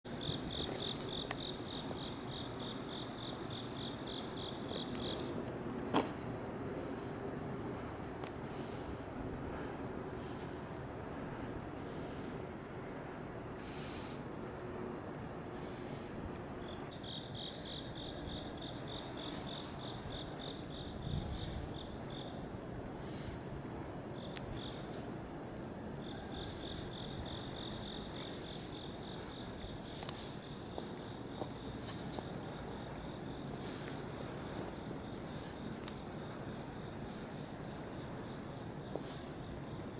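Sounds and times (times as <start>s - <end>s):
crickets chirping: 0.0s - 39.9s
low background rumble: 0.1s - 39.9s.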